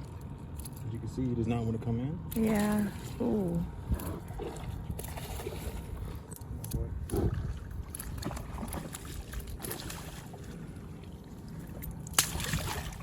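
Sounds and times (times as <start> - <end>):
steady low rumble: 0.0 - 13.0
water around the hull: 0.0 - 13.0.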